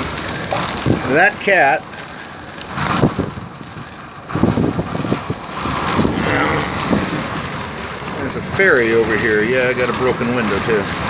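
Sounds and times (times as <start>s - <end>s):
crackles and knocks: 0.0s - 11.0s
rain falling on a boat: 0.0s - 11.0s
wind on microphone: 2.7s - 8.4s.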